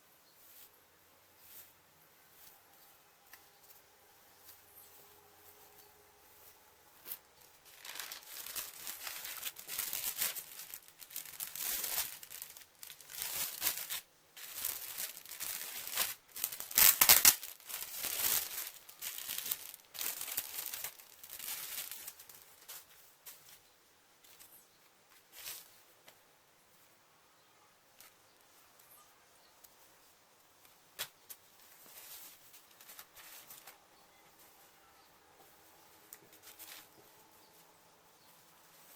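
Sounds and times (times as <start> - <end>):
packaging crinkling: 7.1 - 22.8
packaging ripping: 7.6 - 22.4.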